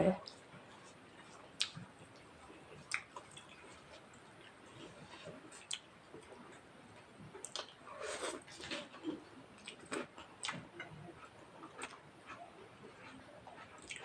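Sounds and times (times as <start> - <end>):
close chewing: 0.2 - 6.7, 7.3 - 14.0
lip smacks: 1.6 - 1.8.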